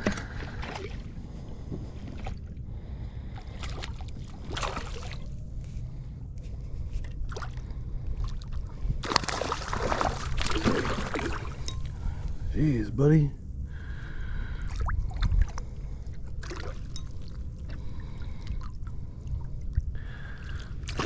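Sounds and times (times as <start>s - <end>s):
short splashes or knocks: 0.0s - 1.0s, 9.0s - 11.9s
water sloshing around kayak hull: 0.0s - 2.6s, 3.2s - 12.5s, 13.8s - 21.0s
steady low rumble: 0.0s - 21.0s.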